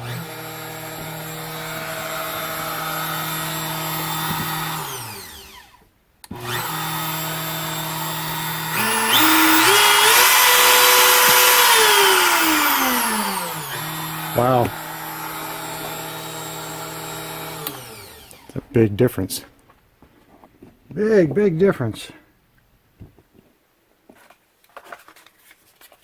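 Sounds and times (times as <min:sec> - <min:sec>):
router motor whining: 0:00.0 - 0:18.7.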